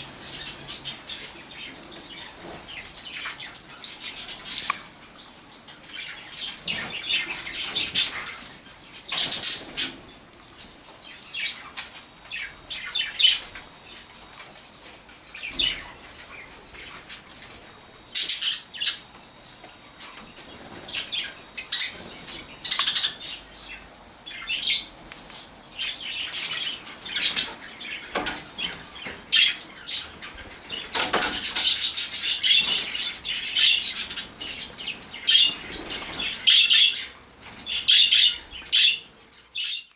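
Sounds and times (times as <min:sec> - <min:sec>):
budgerigars chirping and chattering: 0:00.0 - 0:10.2, 0:11.0 - 0:14.1, 0:15.3 - 0:17.3, 0:18.0 - 0:19.2, 0:20.0 - 0:39.9
wings flapping: 0:29.9 - 0:36.7.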